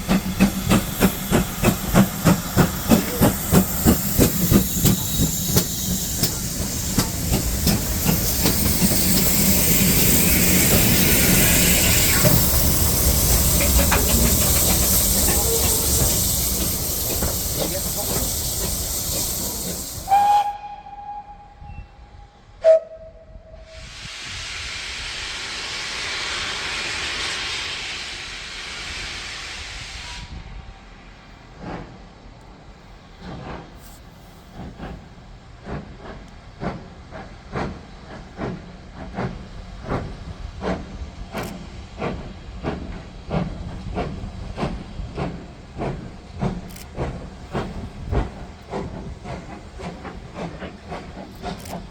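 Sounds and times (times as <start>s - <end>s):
steam hissing: 0.0s - 21.8s, 22.6s - 30.7s, 33.1s - 51.9s
steam locomotive chuffing: 0.0s - 21.8s, 22.4s - 51.9s
steam whistle blasts: 19.4s - 26.8s.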